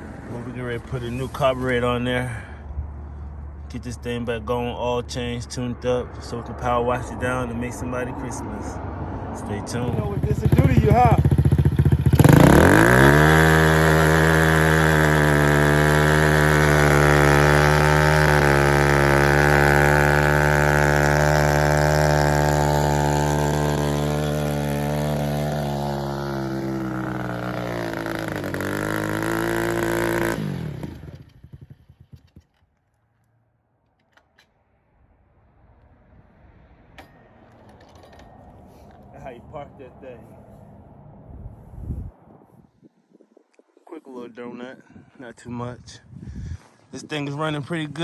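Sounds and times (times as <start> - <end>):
dirt bike engine running: 9.7 - 32.6.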